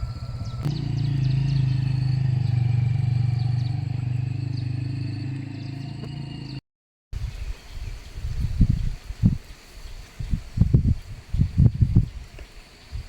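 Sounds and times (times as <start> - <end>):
motor engine humming: 0.0 - 6.6.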